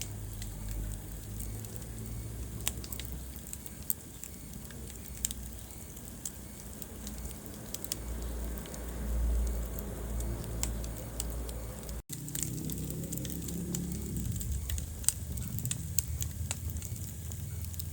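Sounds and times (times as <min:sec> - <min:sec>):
low rumble of flames: 0:00.0 - 0:17.9
wood fire crackling: 0:00.0 - 0:17.9.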